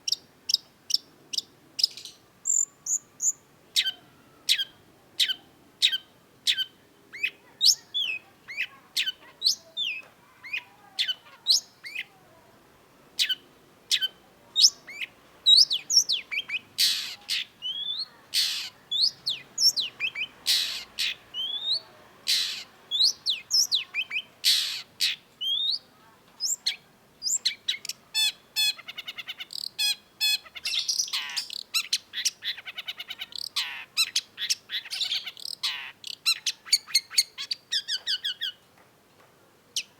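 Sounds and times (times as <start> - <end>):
shrike singing: 13.2 - 32.4.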